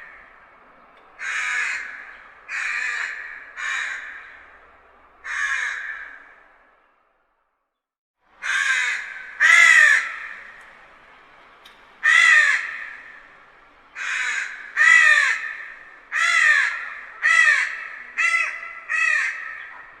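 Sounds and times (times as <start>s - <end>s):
crow cawing: 0.0s - 0.4s, 1.2s - 6.6s, 8.4s - 10.6s, 12.0s - 20.0s.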